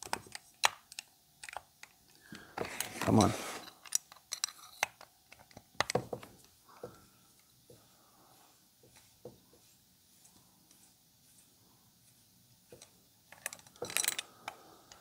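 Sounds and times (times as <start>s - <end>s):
tools clicking and knocking: 2.6s - 6.3s, 12.7s - 14.6s.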